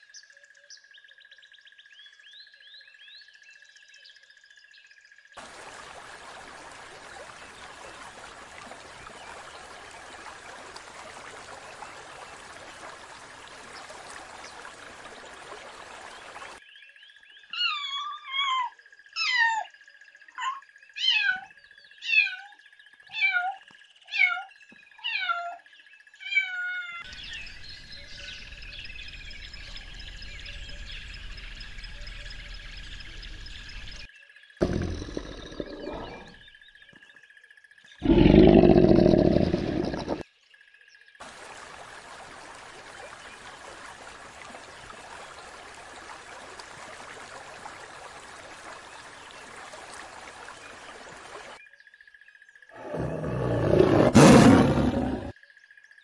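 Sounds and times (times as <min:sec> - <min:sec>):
bird calls: 0:29.5 - 0:36.5.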